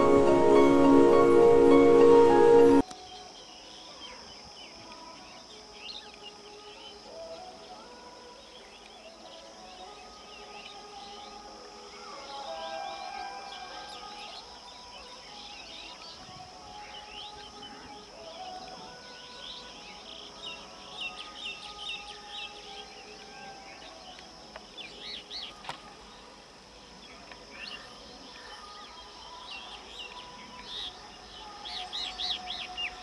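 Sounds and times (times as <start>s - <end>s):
high-pitched drone: 0.0s - 2.8s.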